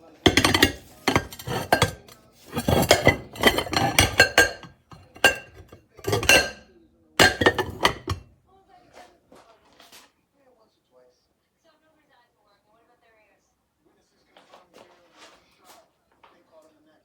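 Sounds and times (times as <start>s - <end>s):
ceramic bowls clinking: 0.0s - 8.3s.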